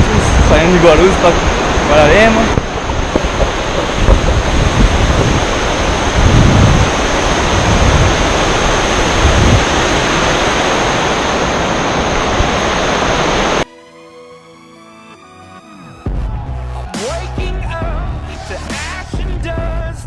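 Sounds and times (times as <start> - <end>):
loud rushing noise with rumbling gusts: 0.0 - 13.7.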